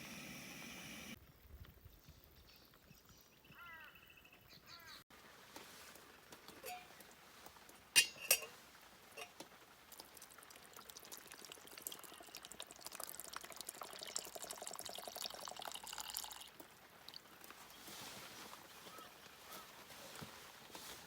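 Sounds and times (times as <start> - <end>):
liquid trickling and splashing: 6.6 - 18.1.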